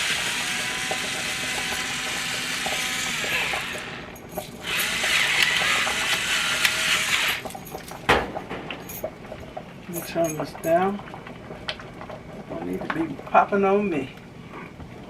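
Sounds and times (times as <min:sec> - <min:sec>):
pepper mill grinding: 0:01.0 - 0:08.0.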